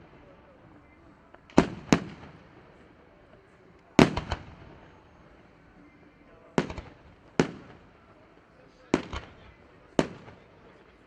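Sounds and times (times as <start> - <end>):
fireworks bursting with bangs: 1.4 - 2.8, 4.0 - 5.0, 6.6 - 8.0, 8.8 - 10.8.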